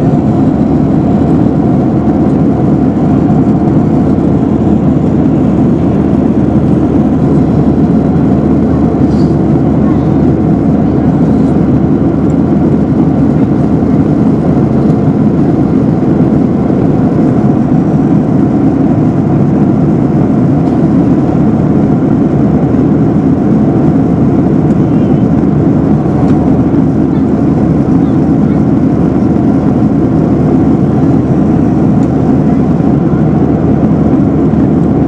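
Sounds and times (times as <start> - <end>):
airliner cabin engine rush: 0.0 - 35.0.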